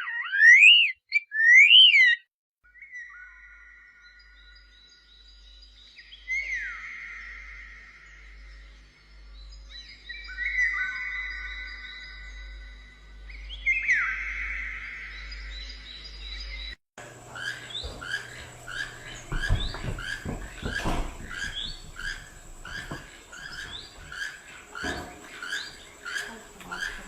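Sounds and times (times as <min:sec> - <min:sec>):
bird whistling calls: 0:00.0 - 0:02.2, 0:17.3 - 0:27.0
bird chirping: 0:00.0 - 0:27.0
low thumps: 0:17.2 - 0:27.0.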